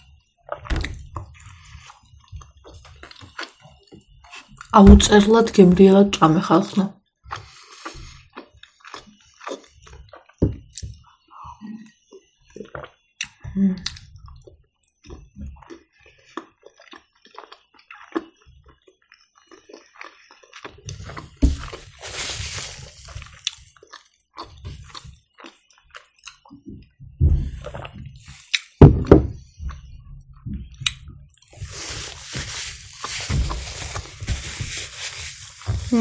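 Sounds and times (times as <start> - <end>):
chewing soft dumpling: 0.0 - 4.8, 7.0 - 28.8
rustling: 21.4 - 23.5, 31.5 - 36.0.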